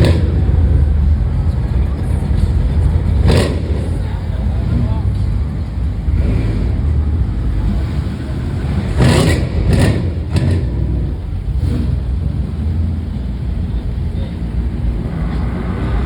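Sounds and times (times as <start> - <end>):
car engines running: 0.0 - 16.0.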